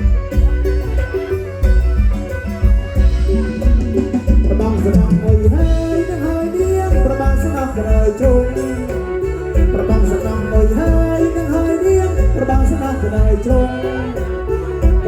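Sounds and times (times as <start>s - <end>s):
heavy drum beat: 0.0s - 15.0s
live folk band playing: 0.0s - 15.0s
person singing: 3.3s - 15.0s.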